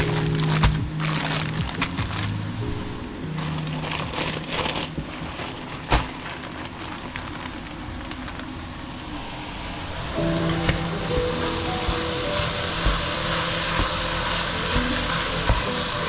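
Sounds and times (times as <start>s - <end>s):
food sizzling in a pan: 9.8s - 16.0s.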